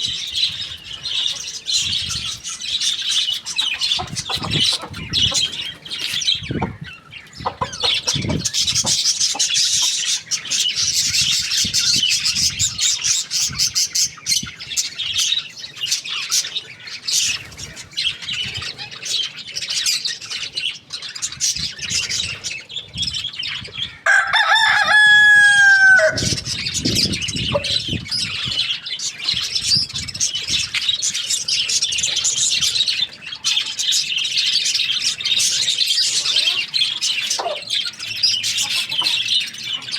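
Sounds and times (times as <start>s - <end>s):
birds chirping: 0.0s - 39.9s
rooster crowing: 24.0s - 26.4s.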